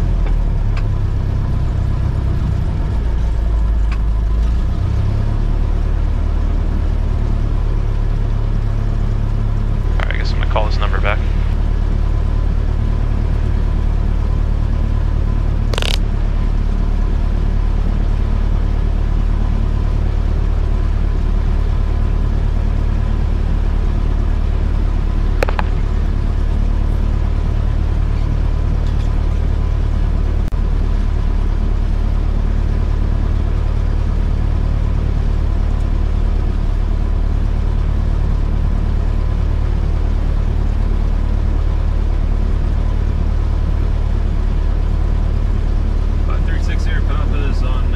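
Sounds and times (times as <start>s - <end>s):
airplane engine running: 0.0s - 47.9s
brief clicks: 25.4s - 25.8s.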